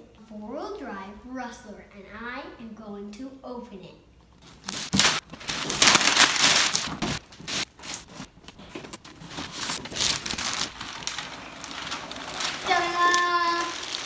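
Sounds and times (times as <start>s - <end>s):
packaging crinkling and tearing: 4.4s - 14.0s.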